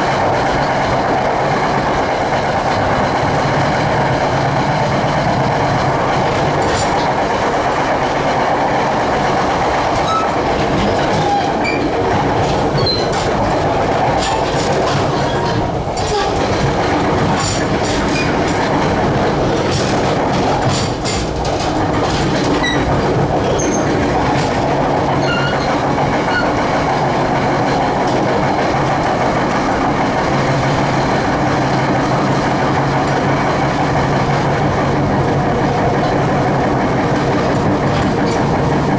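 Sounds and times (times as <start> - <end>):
train wheels rumbling on rail: 0.0 - 38.9
clicks over rail joints: 0.1 - 38.9
high wheel squeals: 10.0 - 12.0, 25.1 - 26.6.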